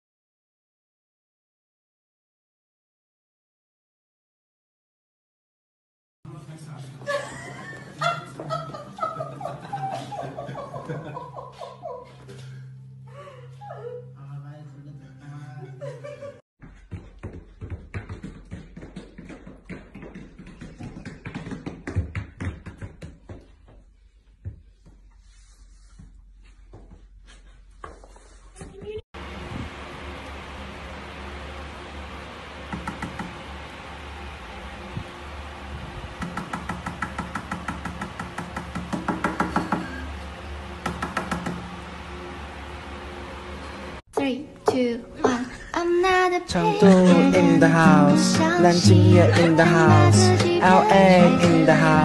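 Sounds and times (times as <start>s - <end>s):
dog boots tapping on hard floor: 16.6s - 23.8s
low steady hum: 29.2s - 36.5s.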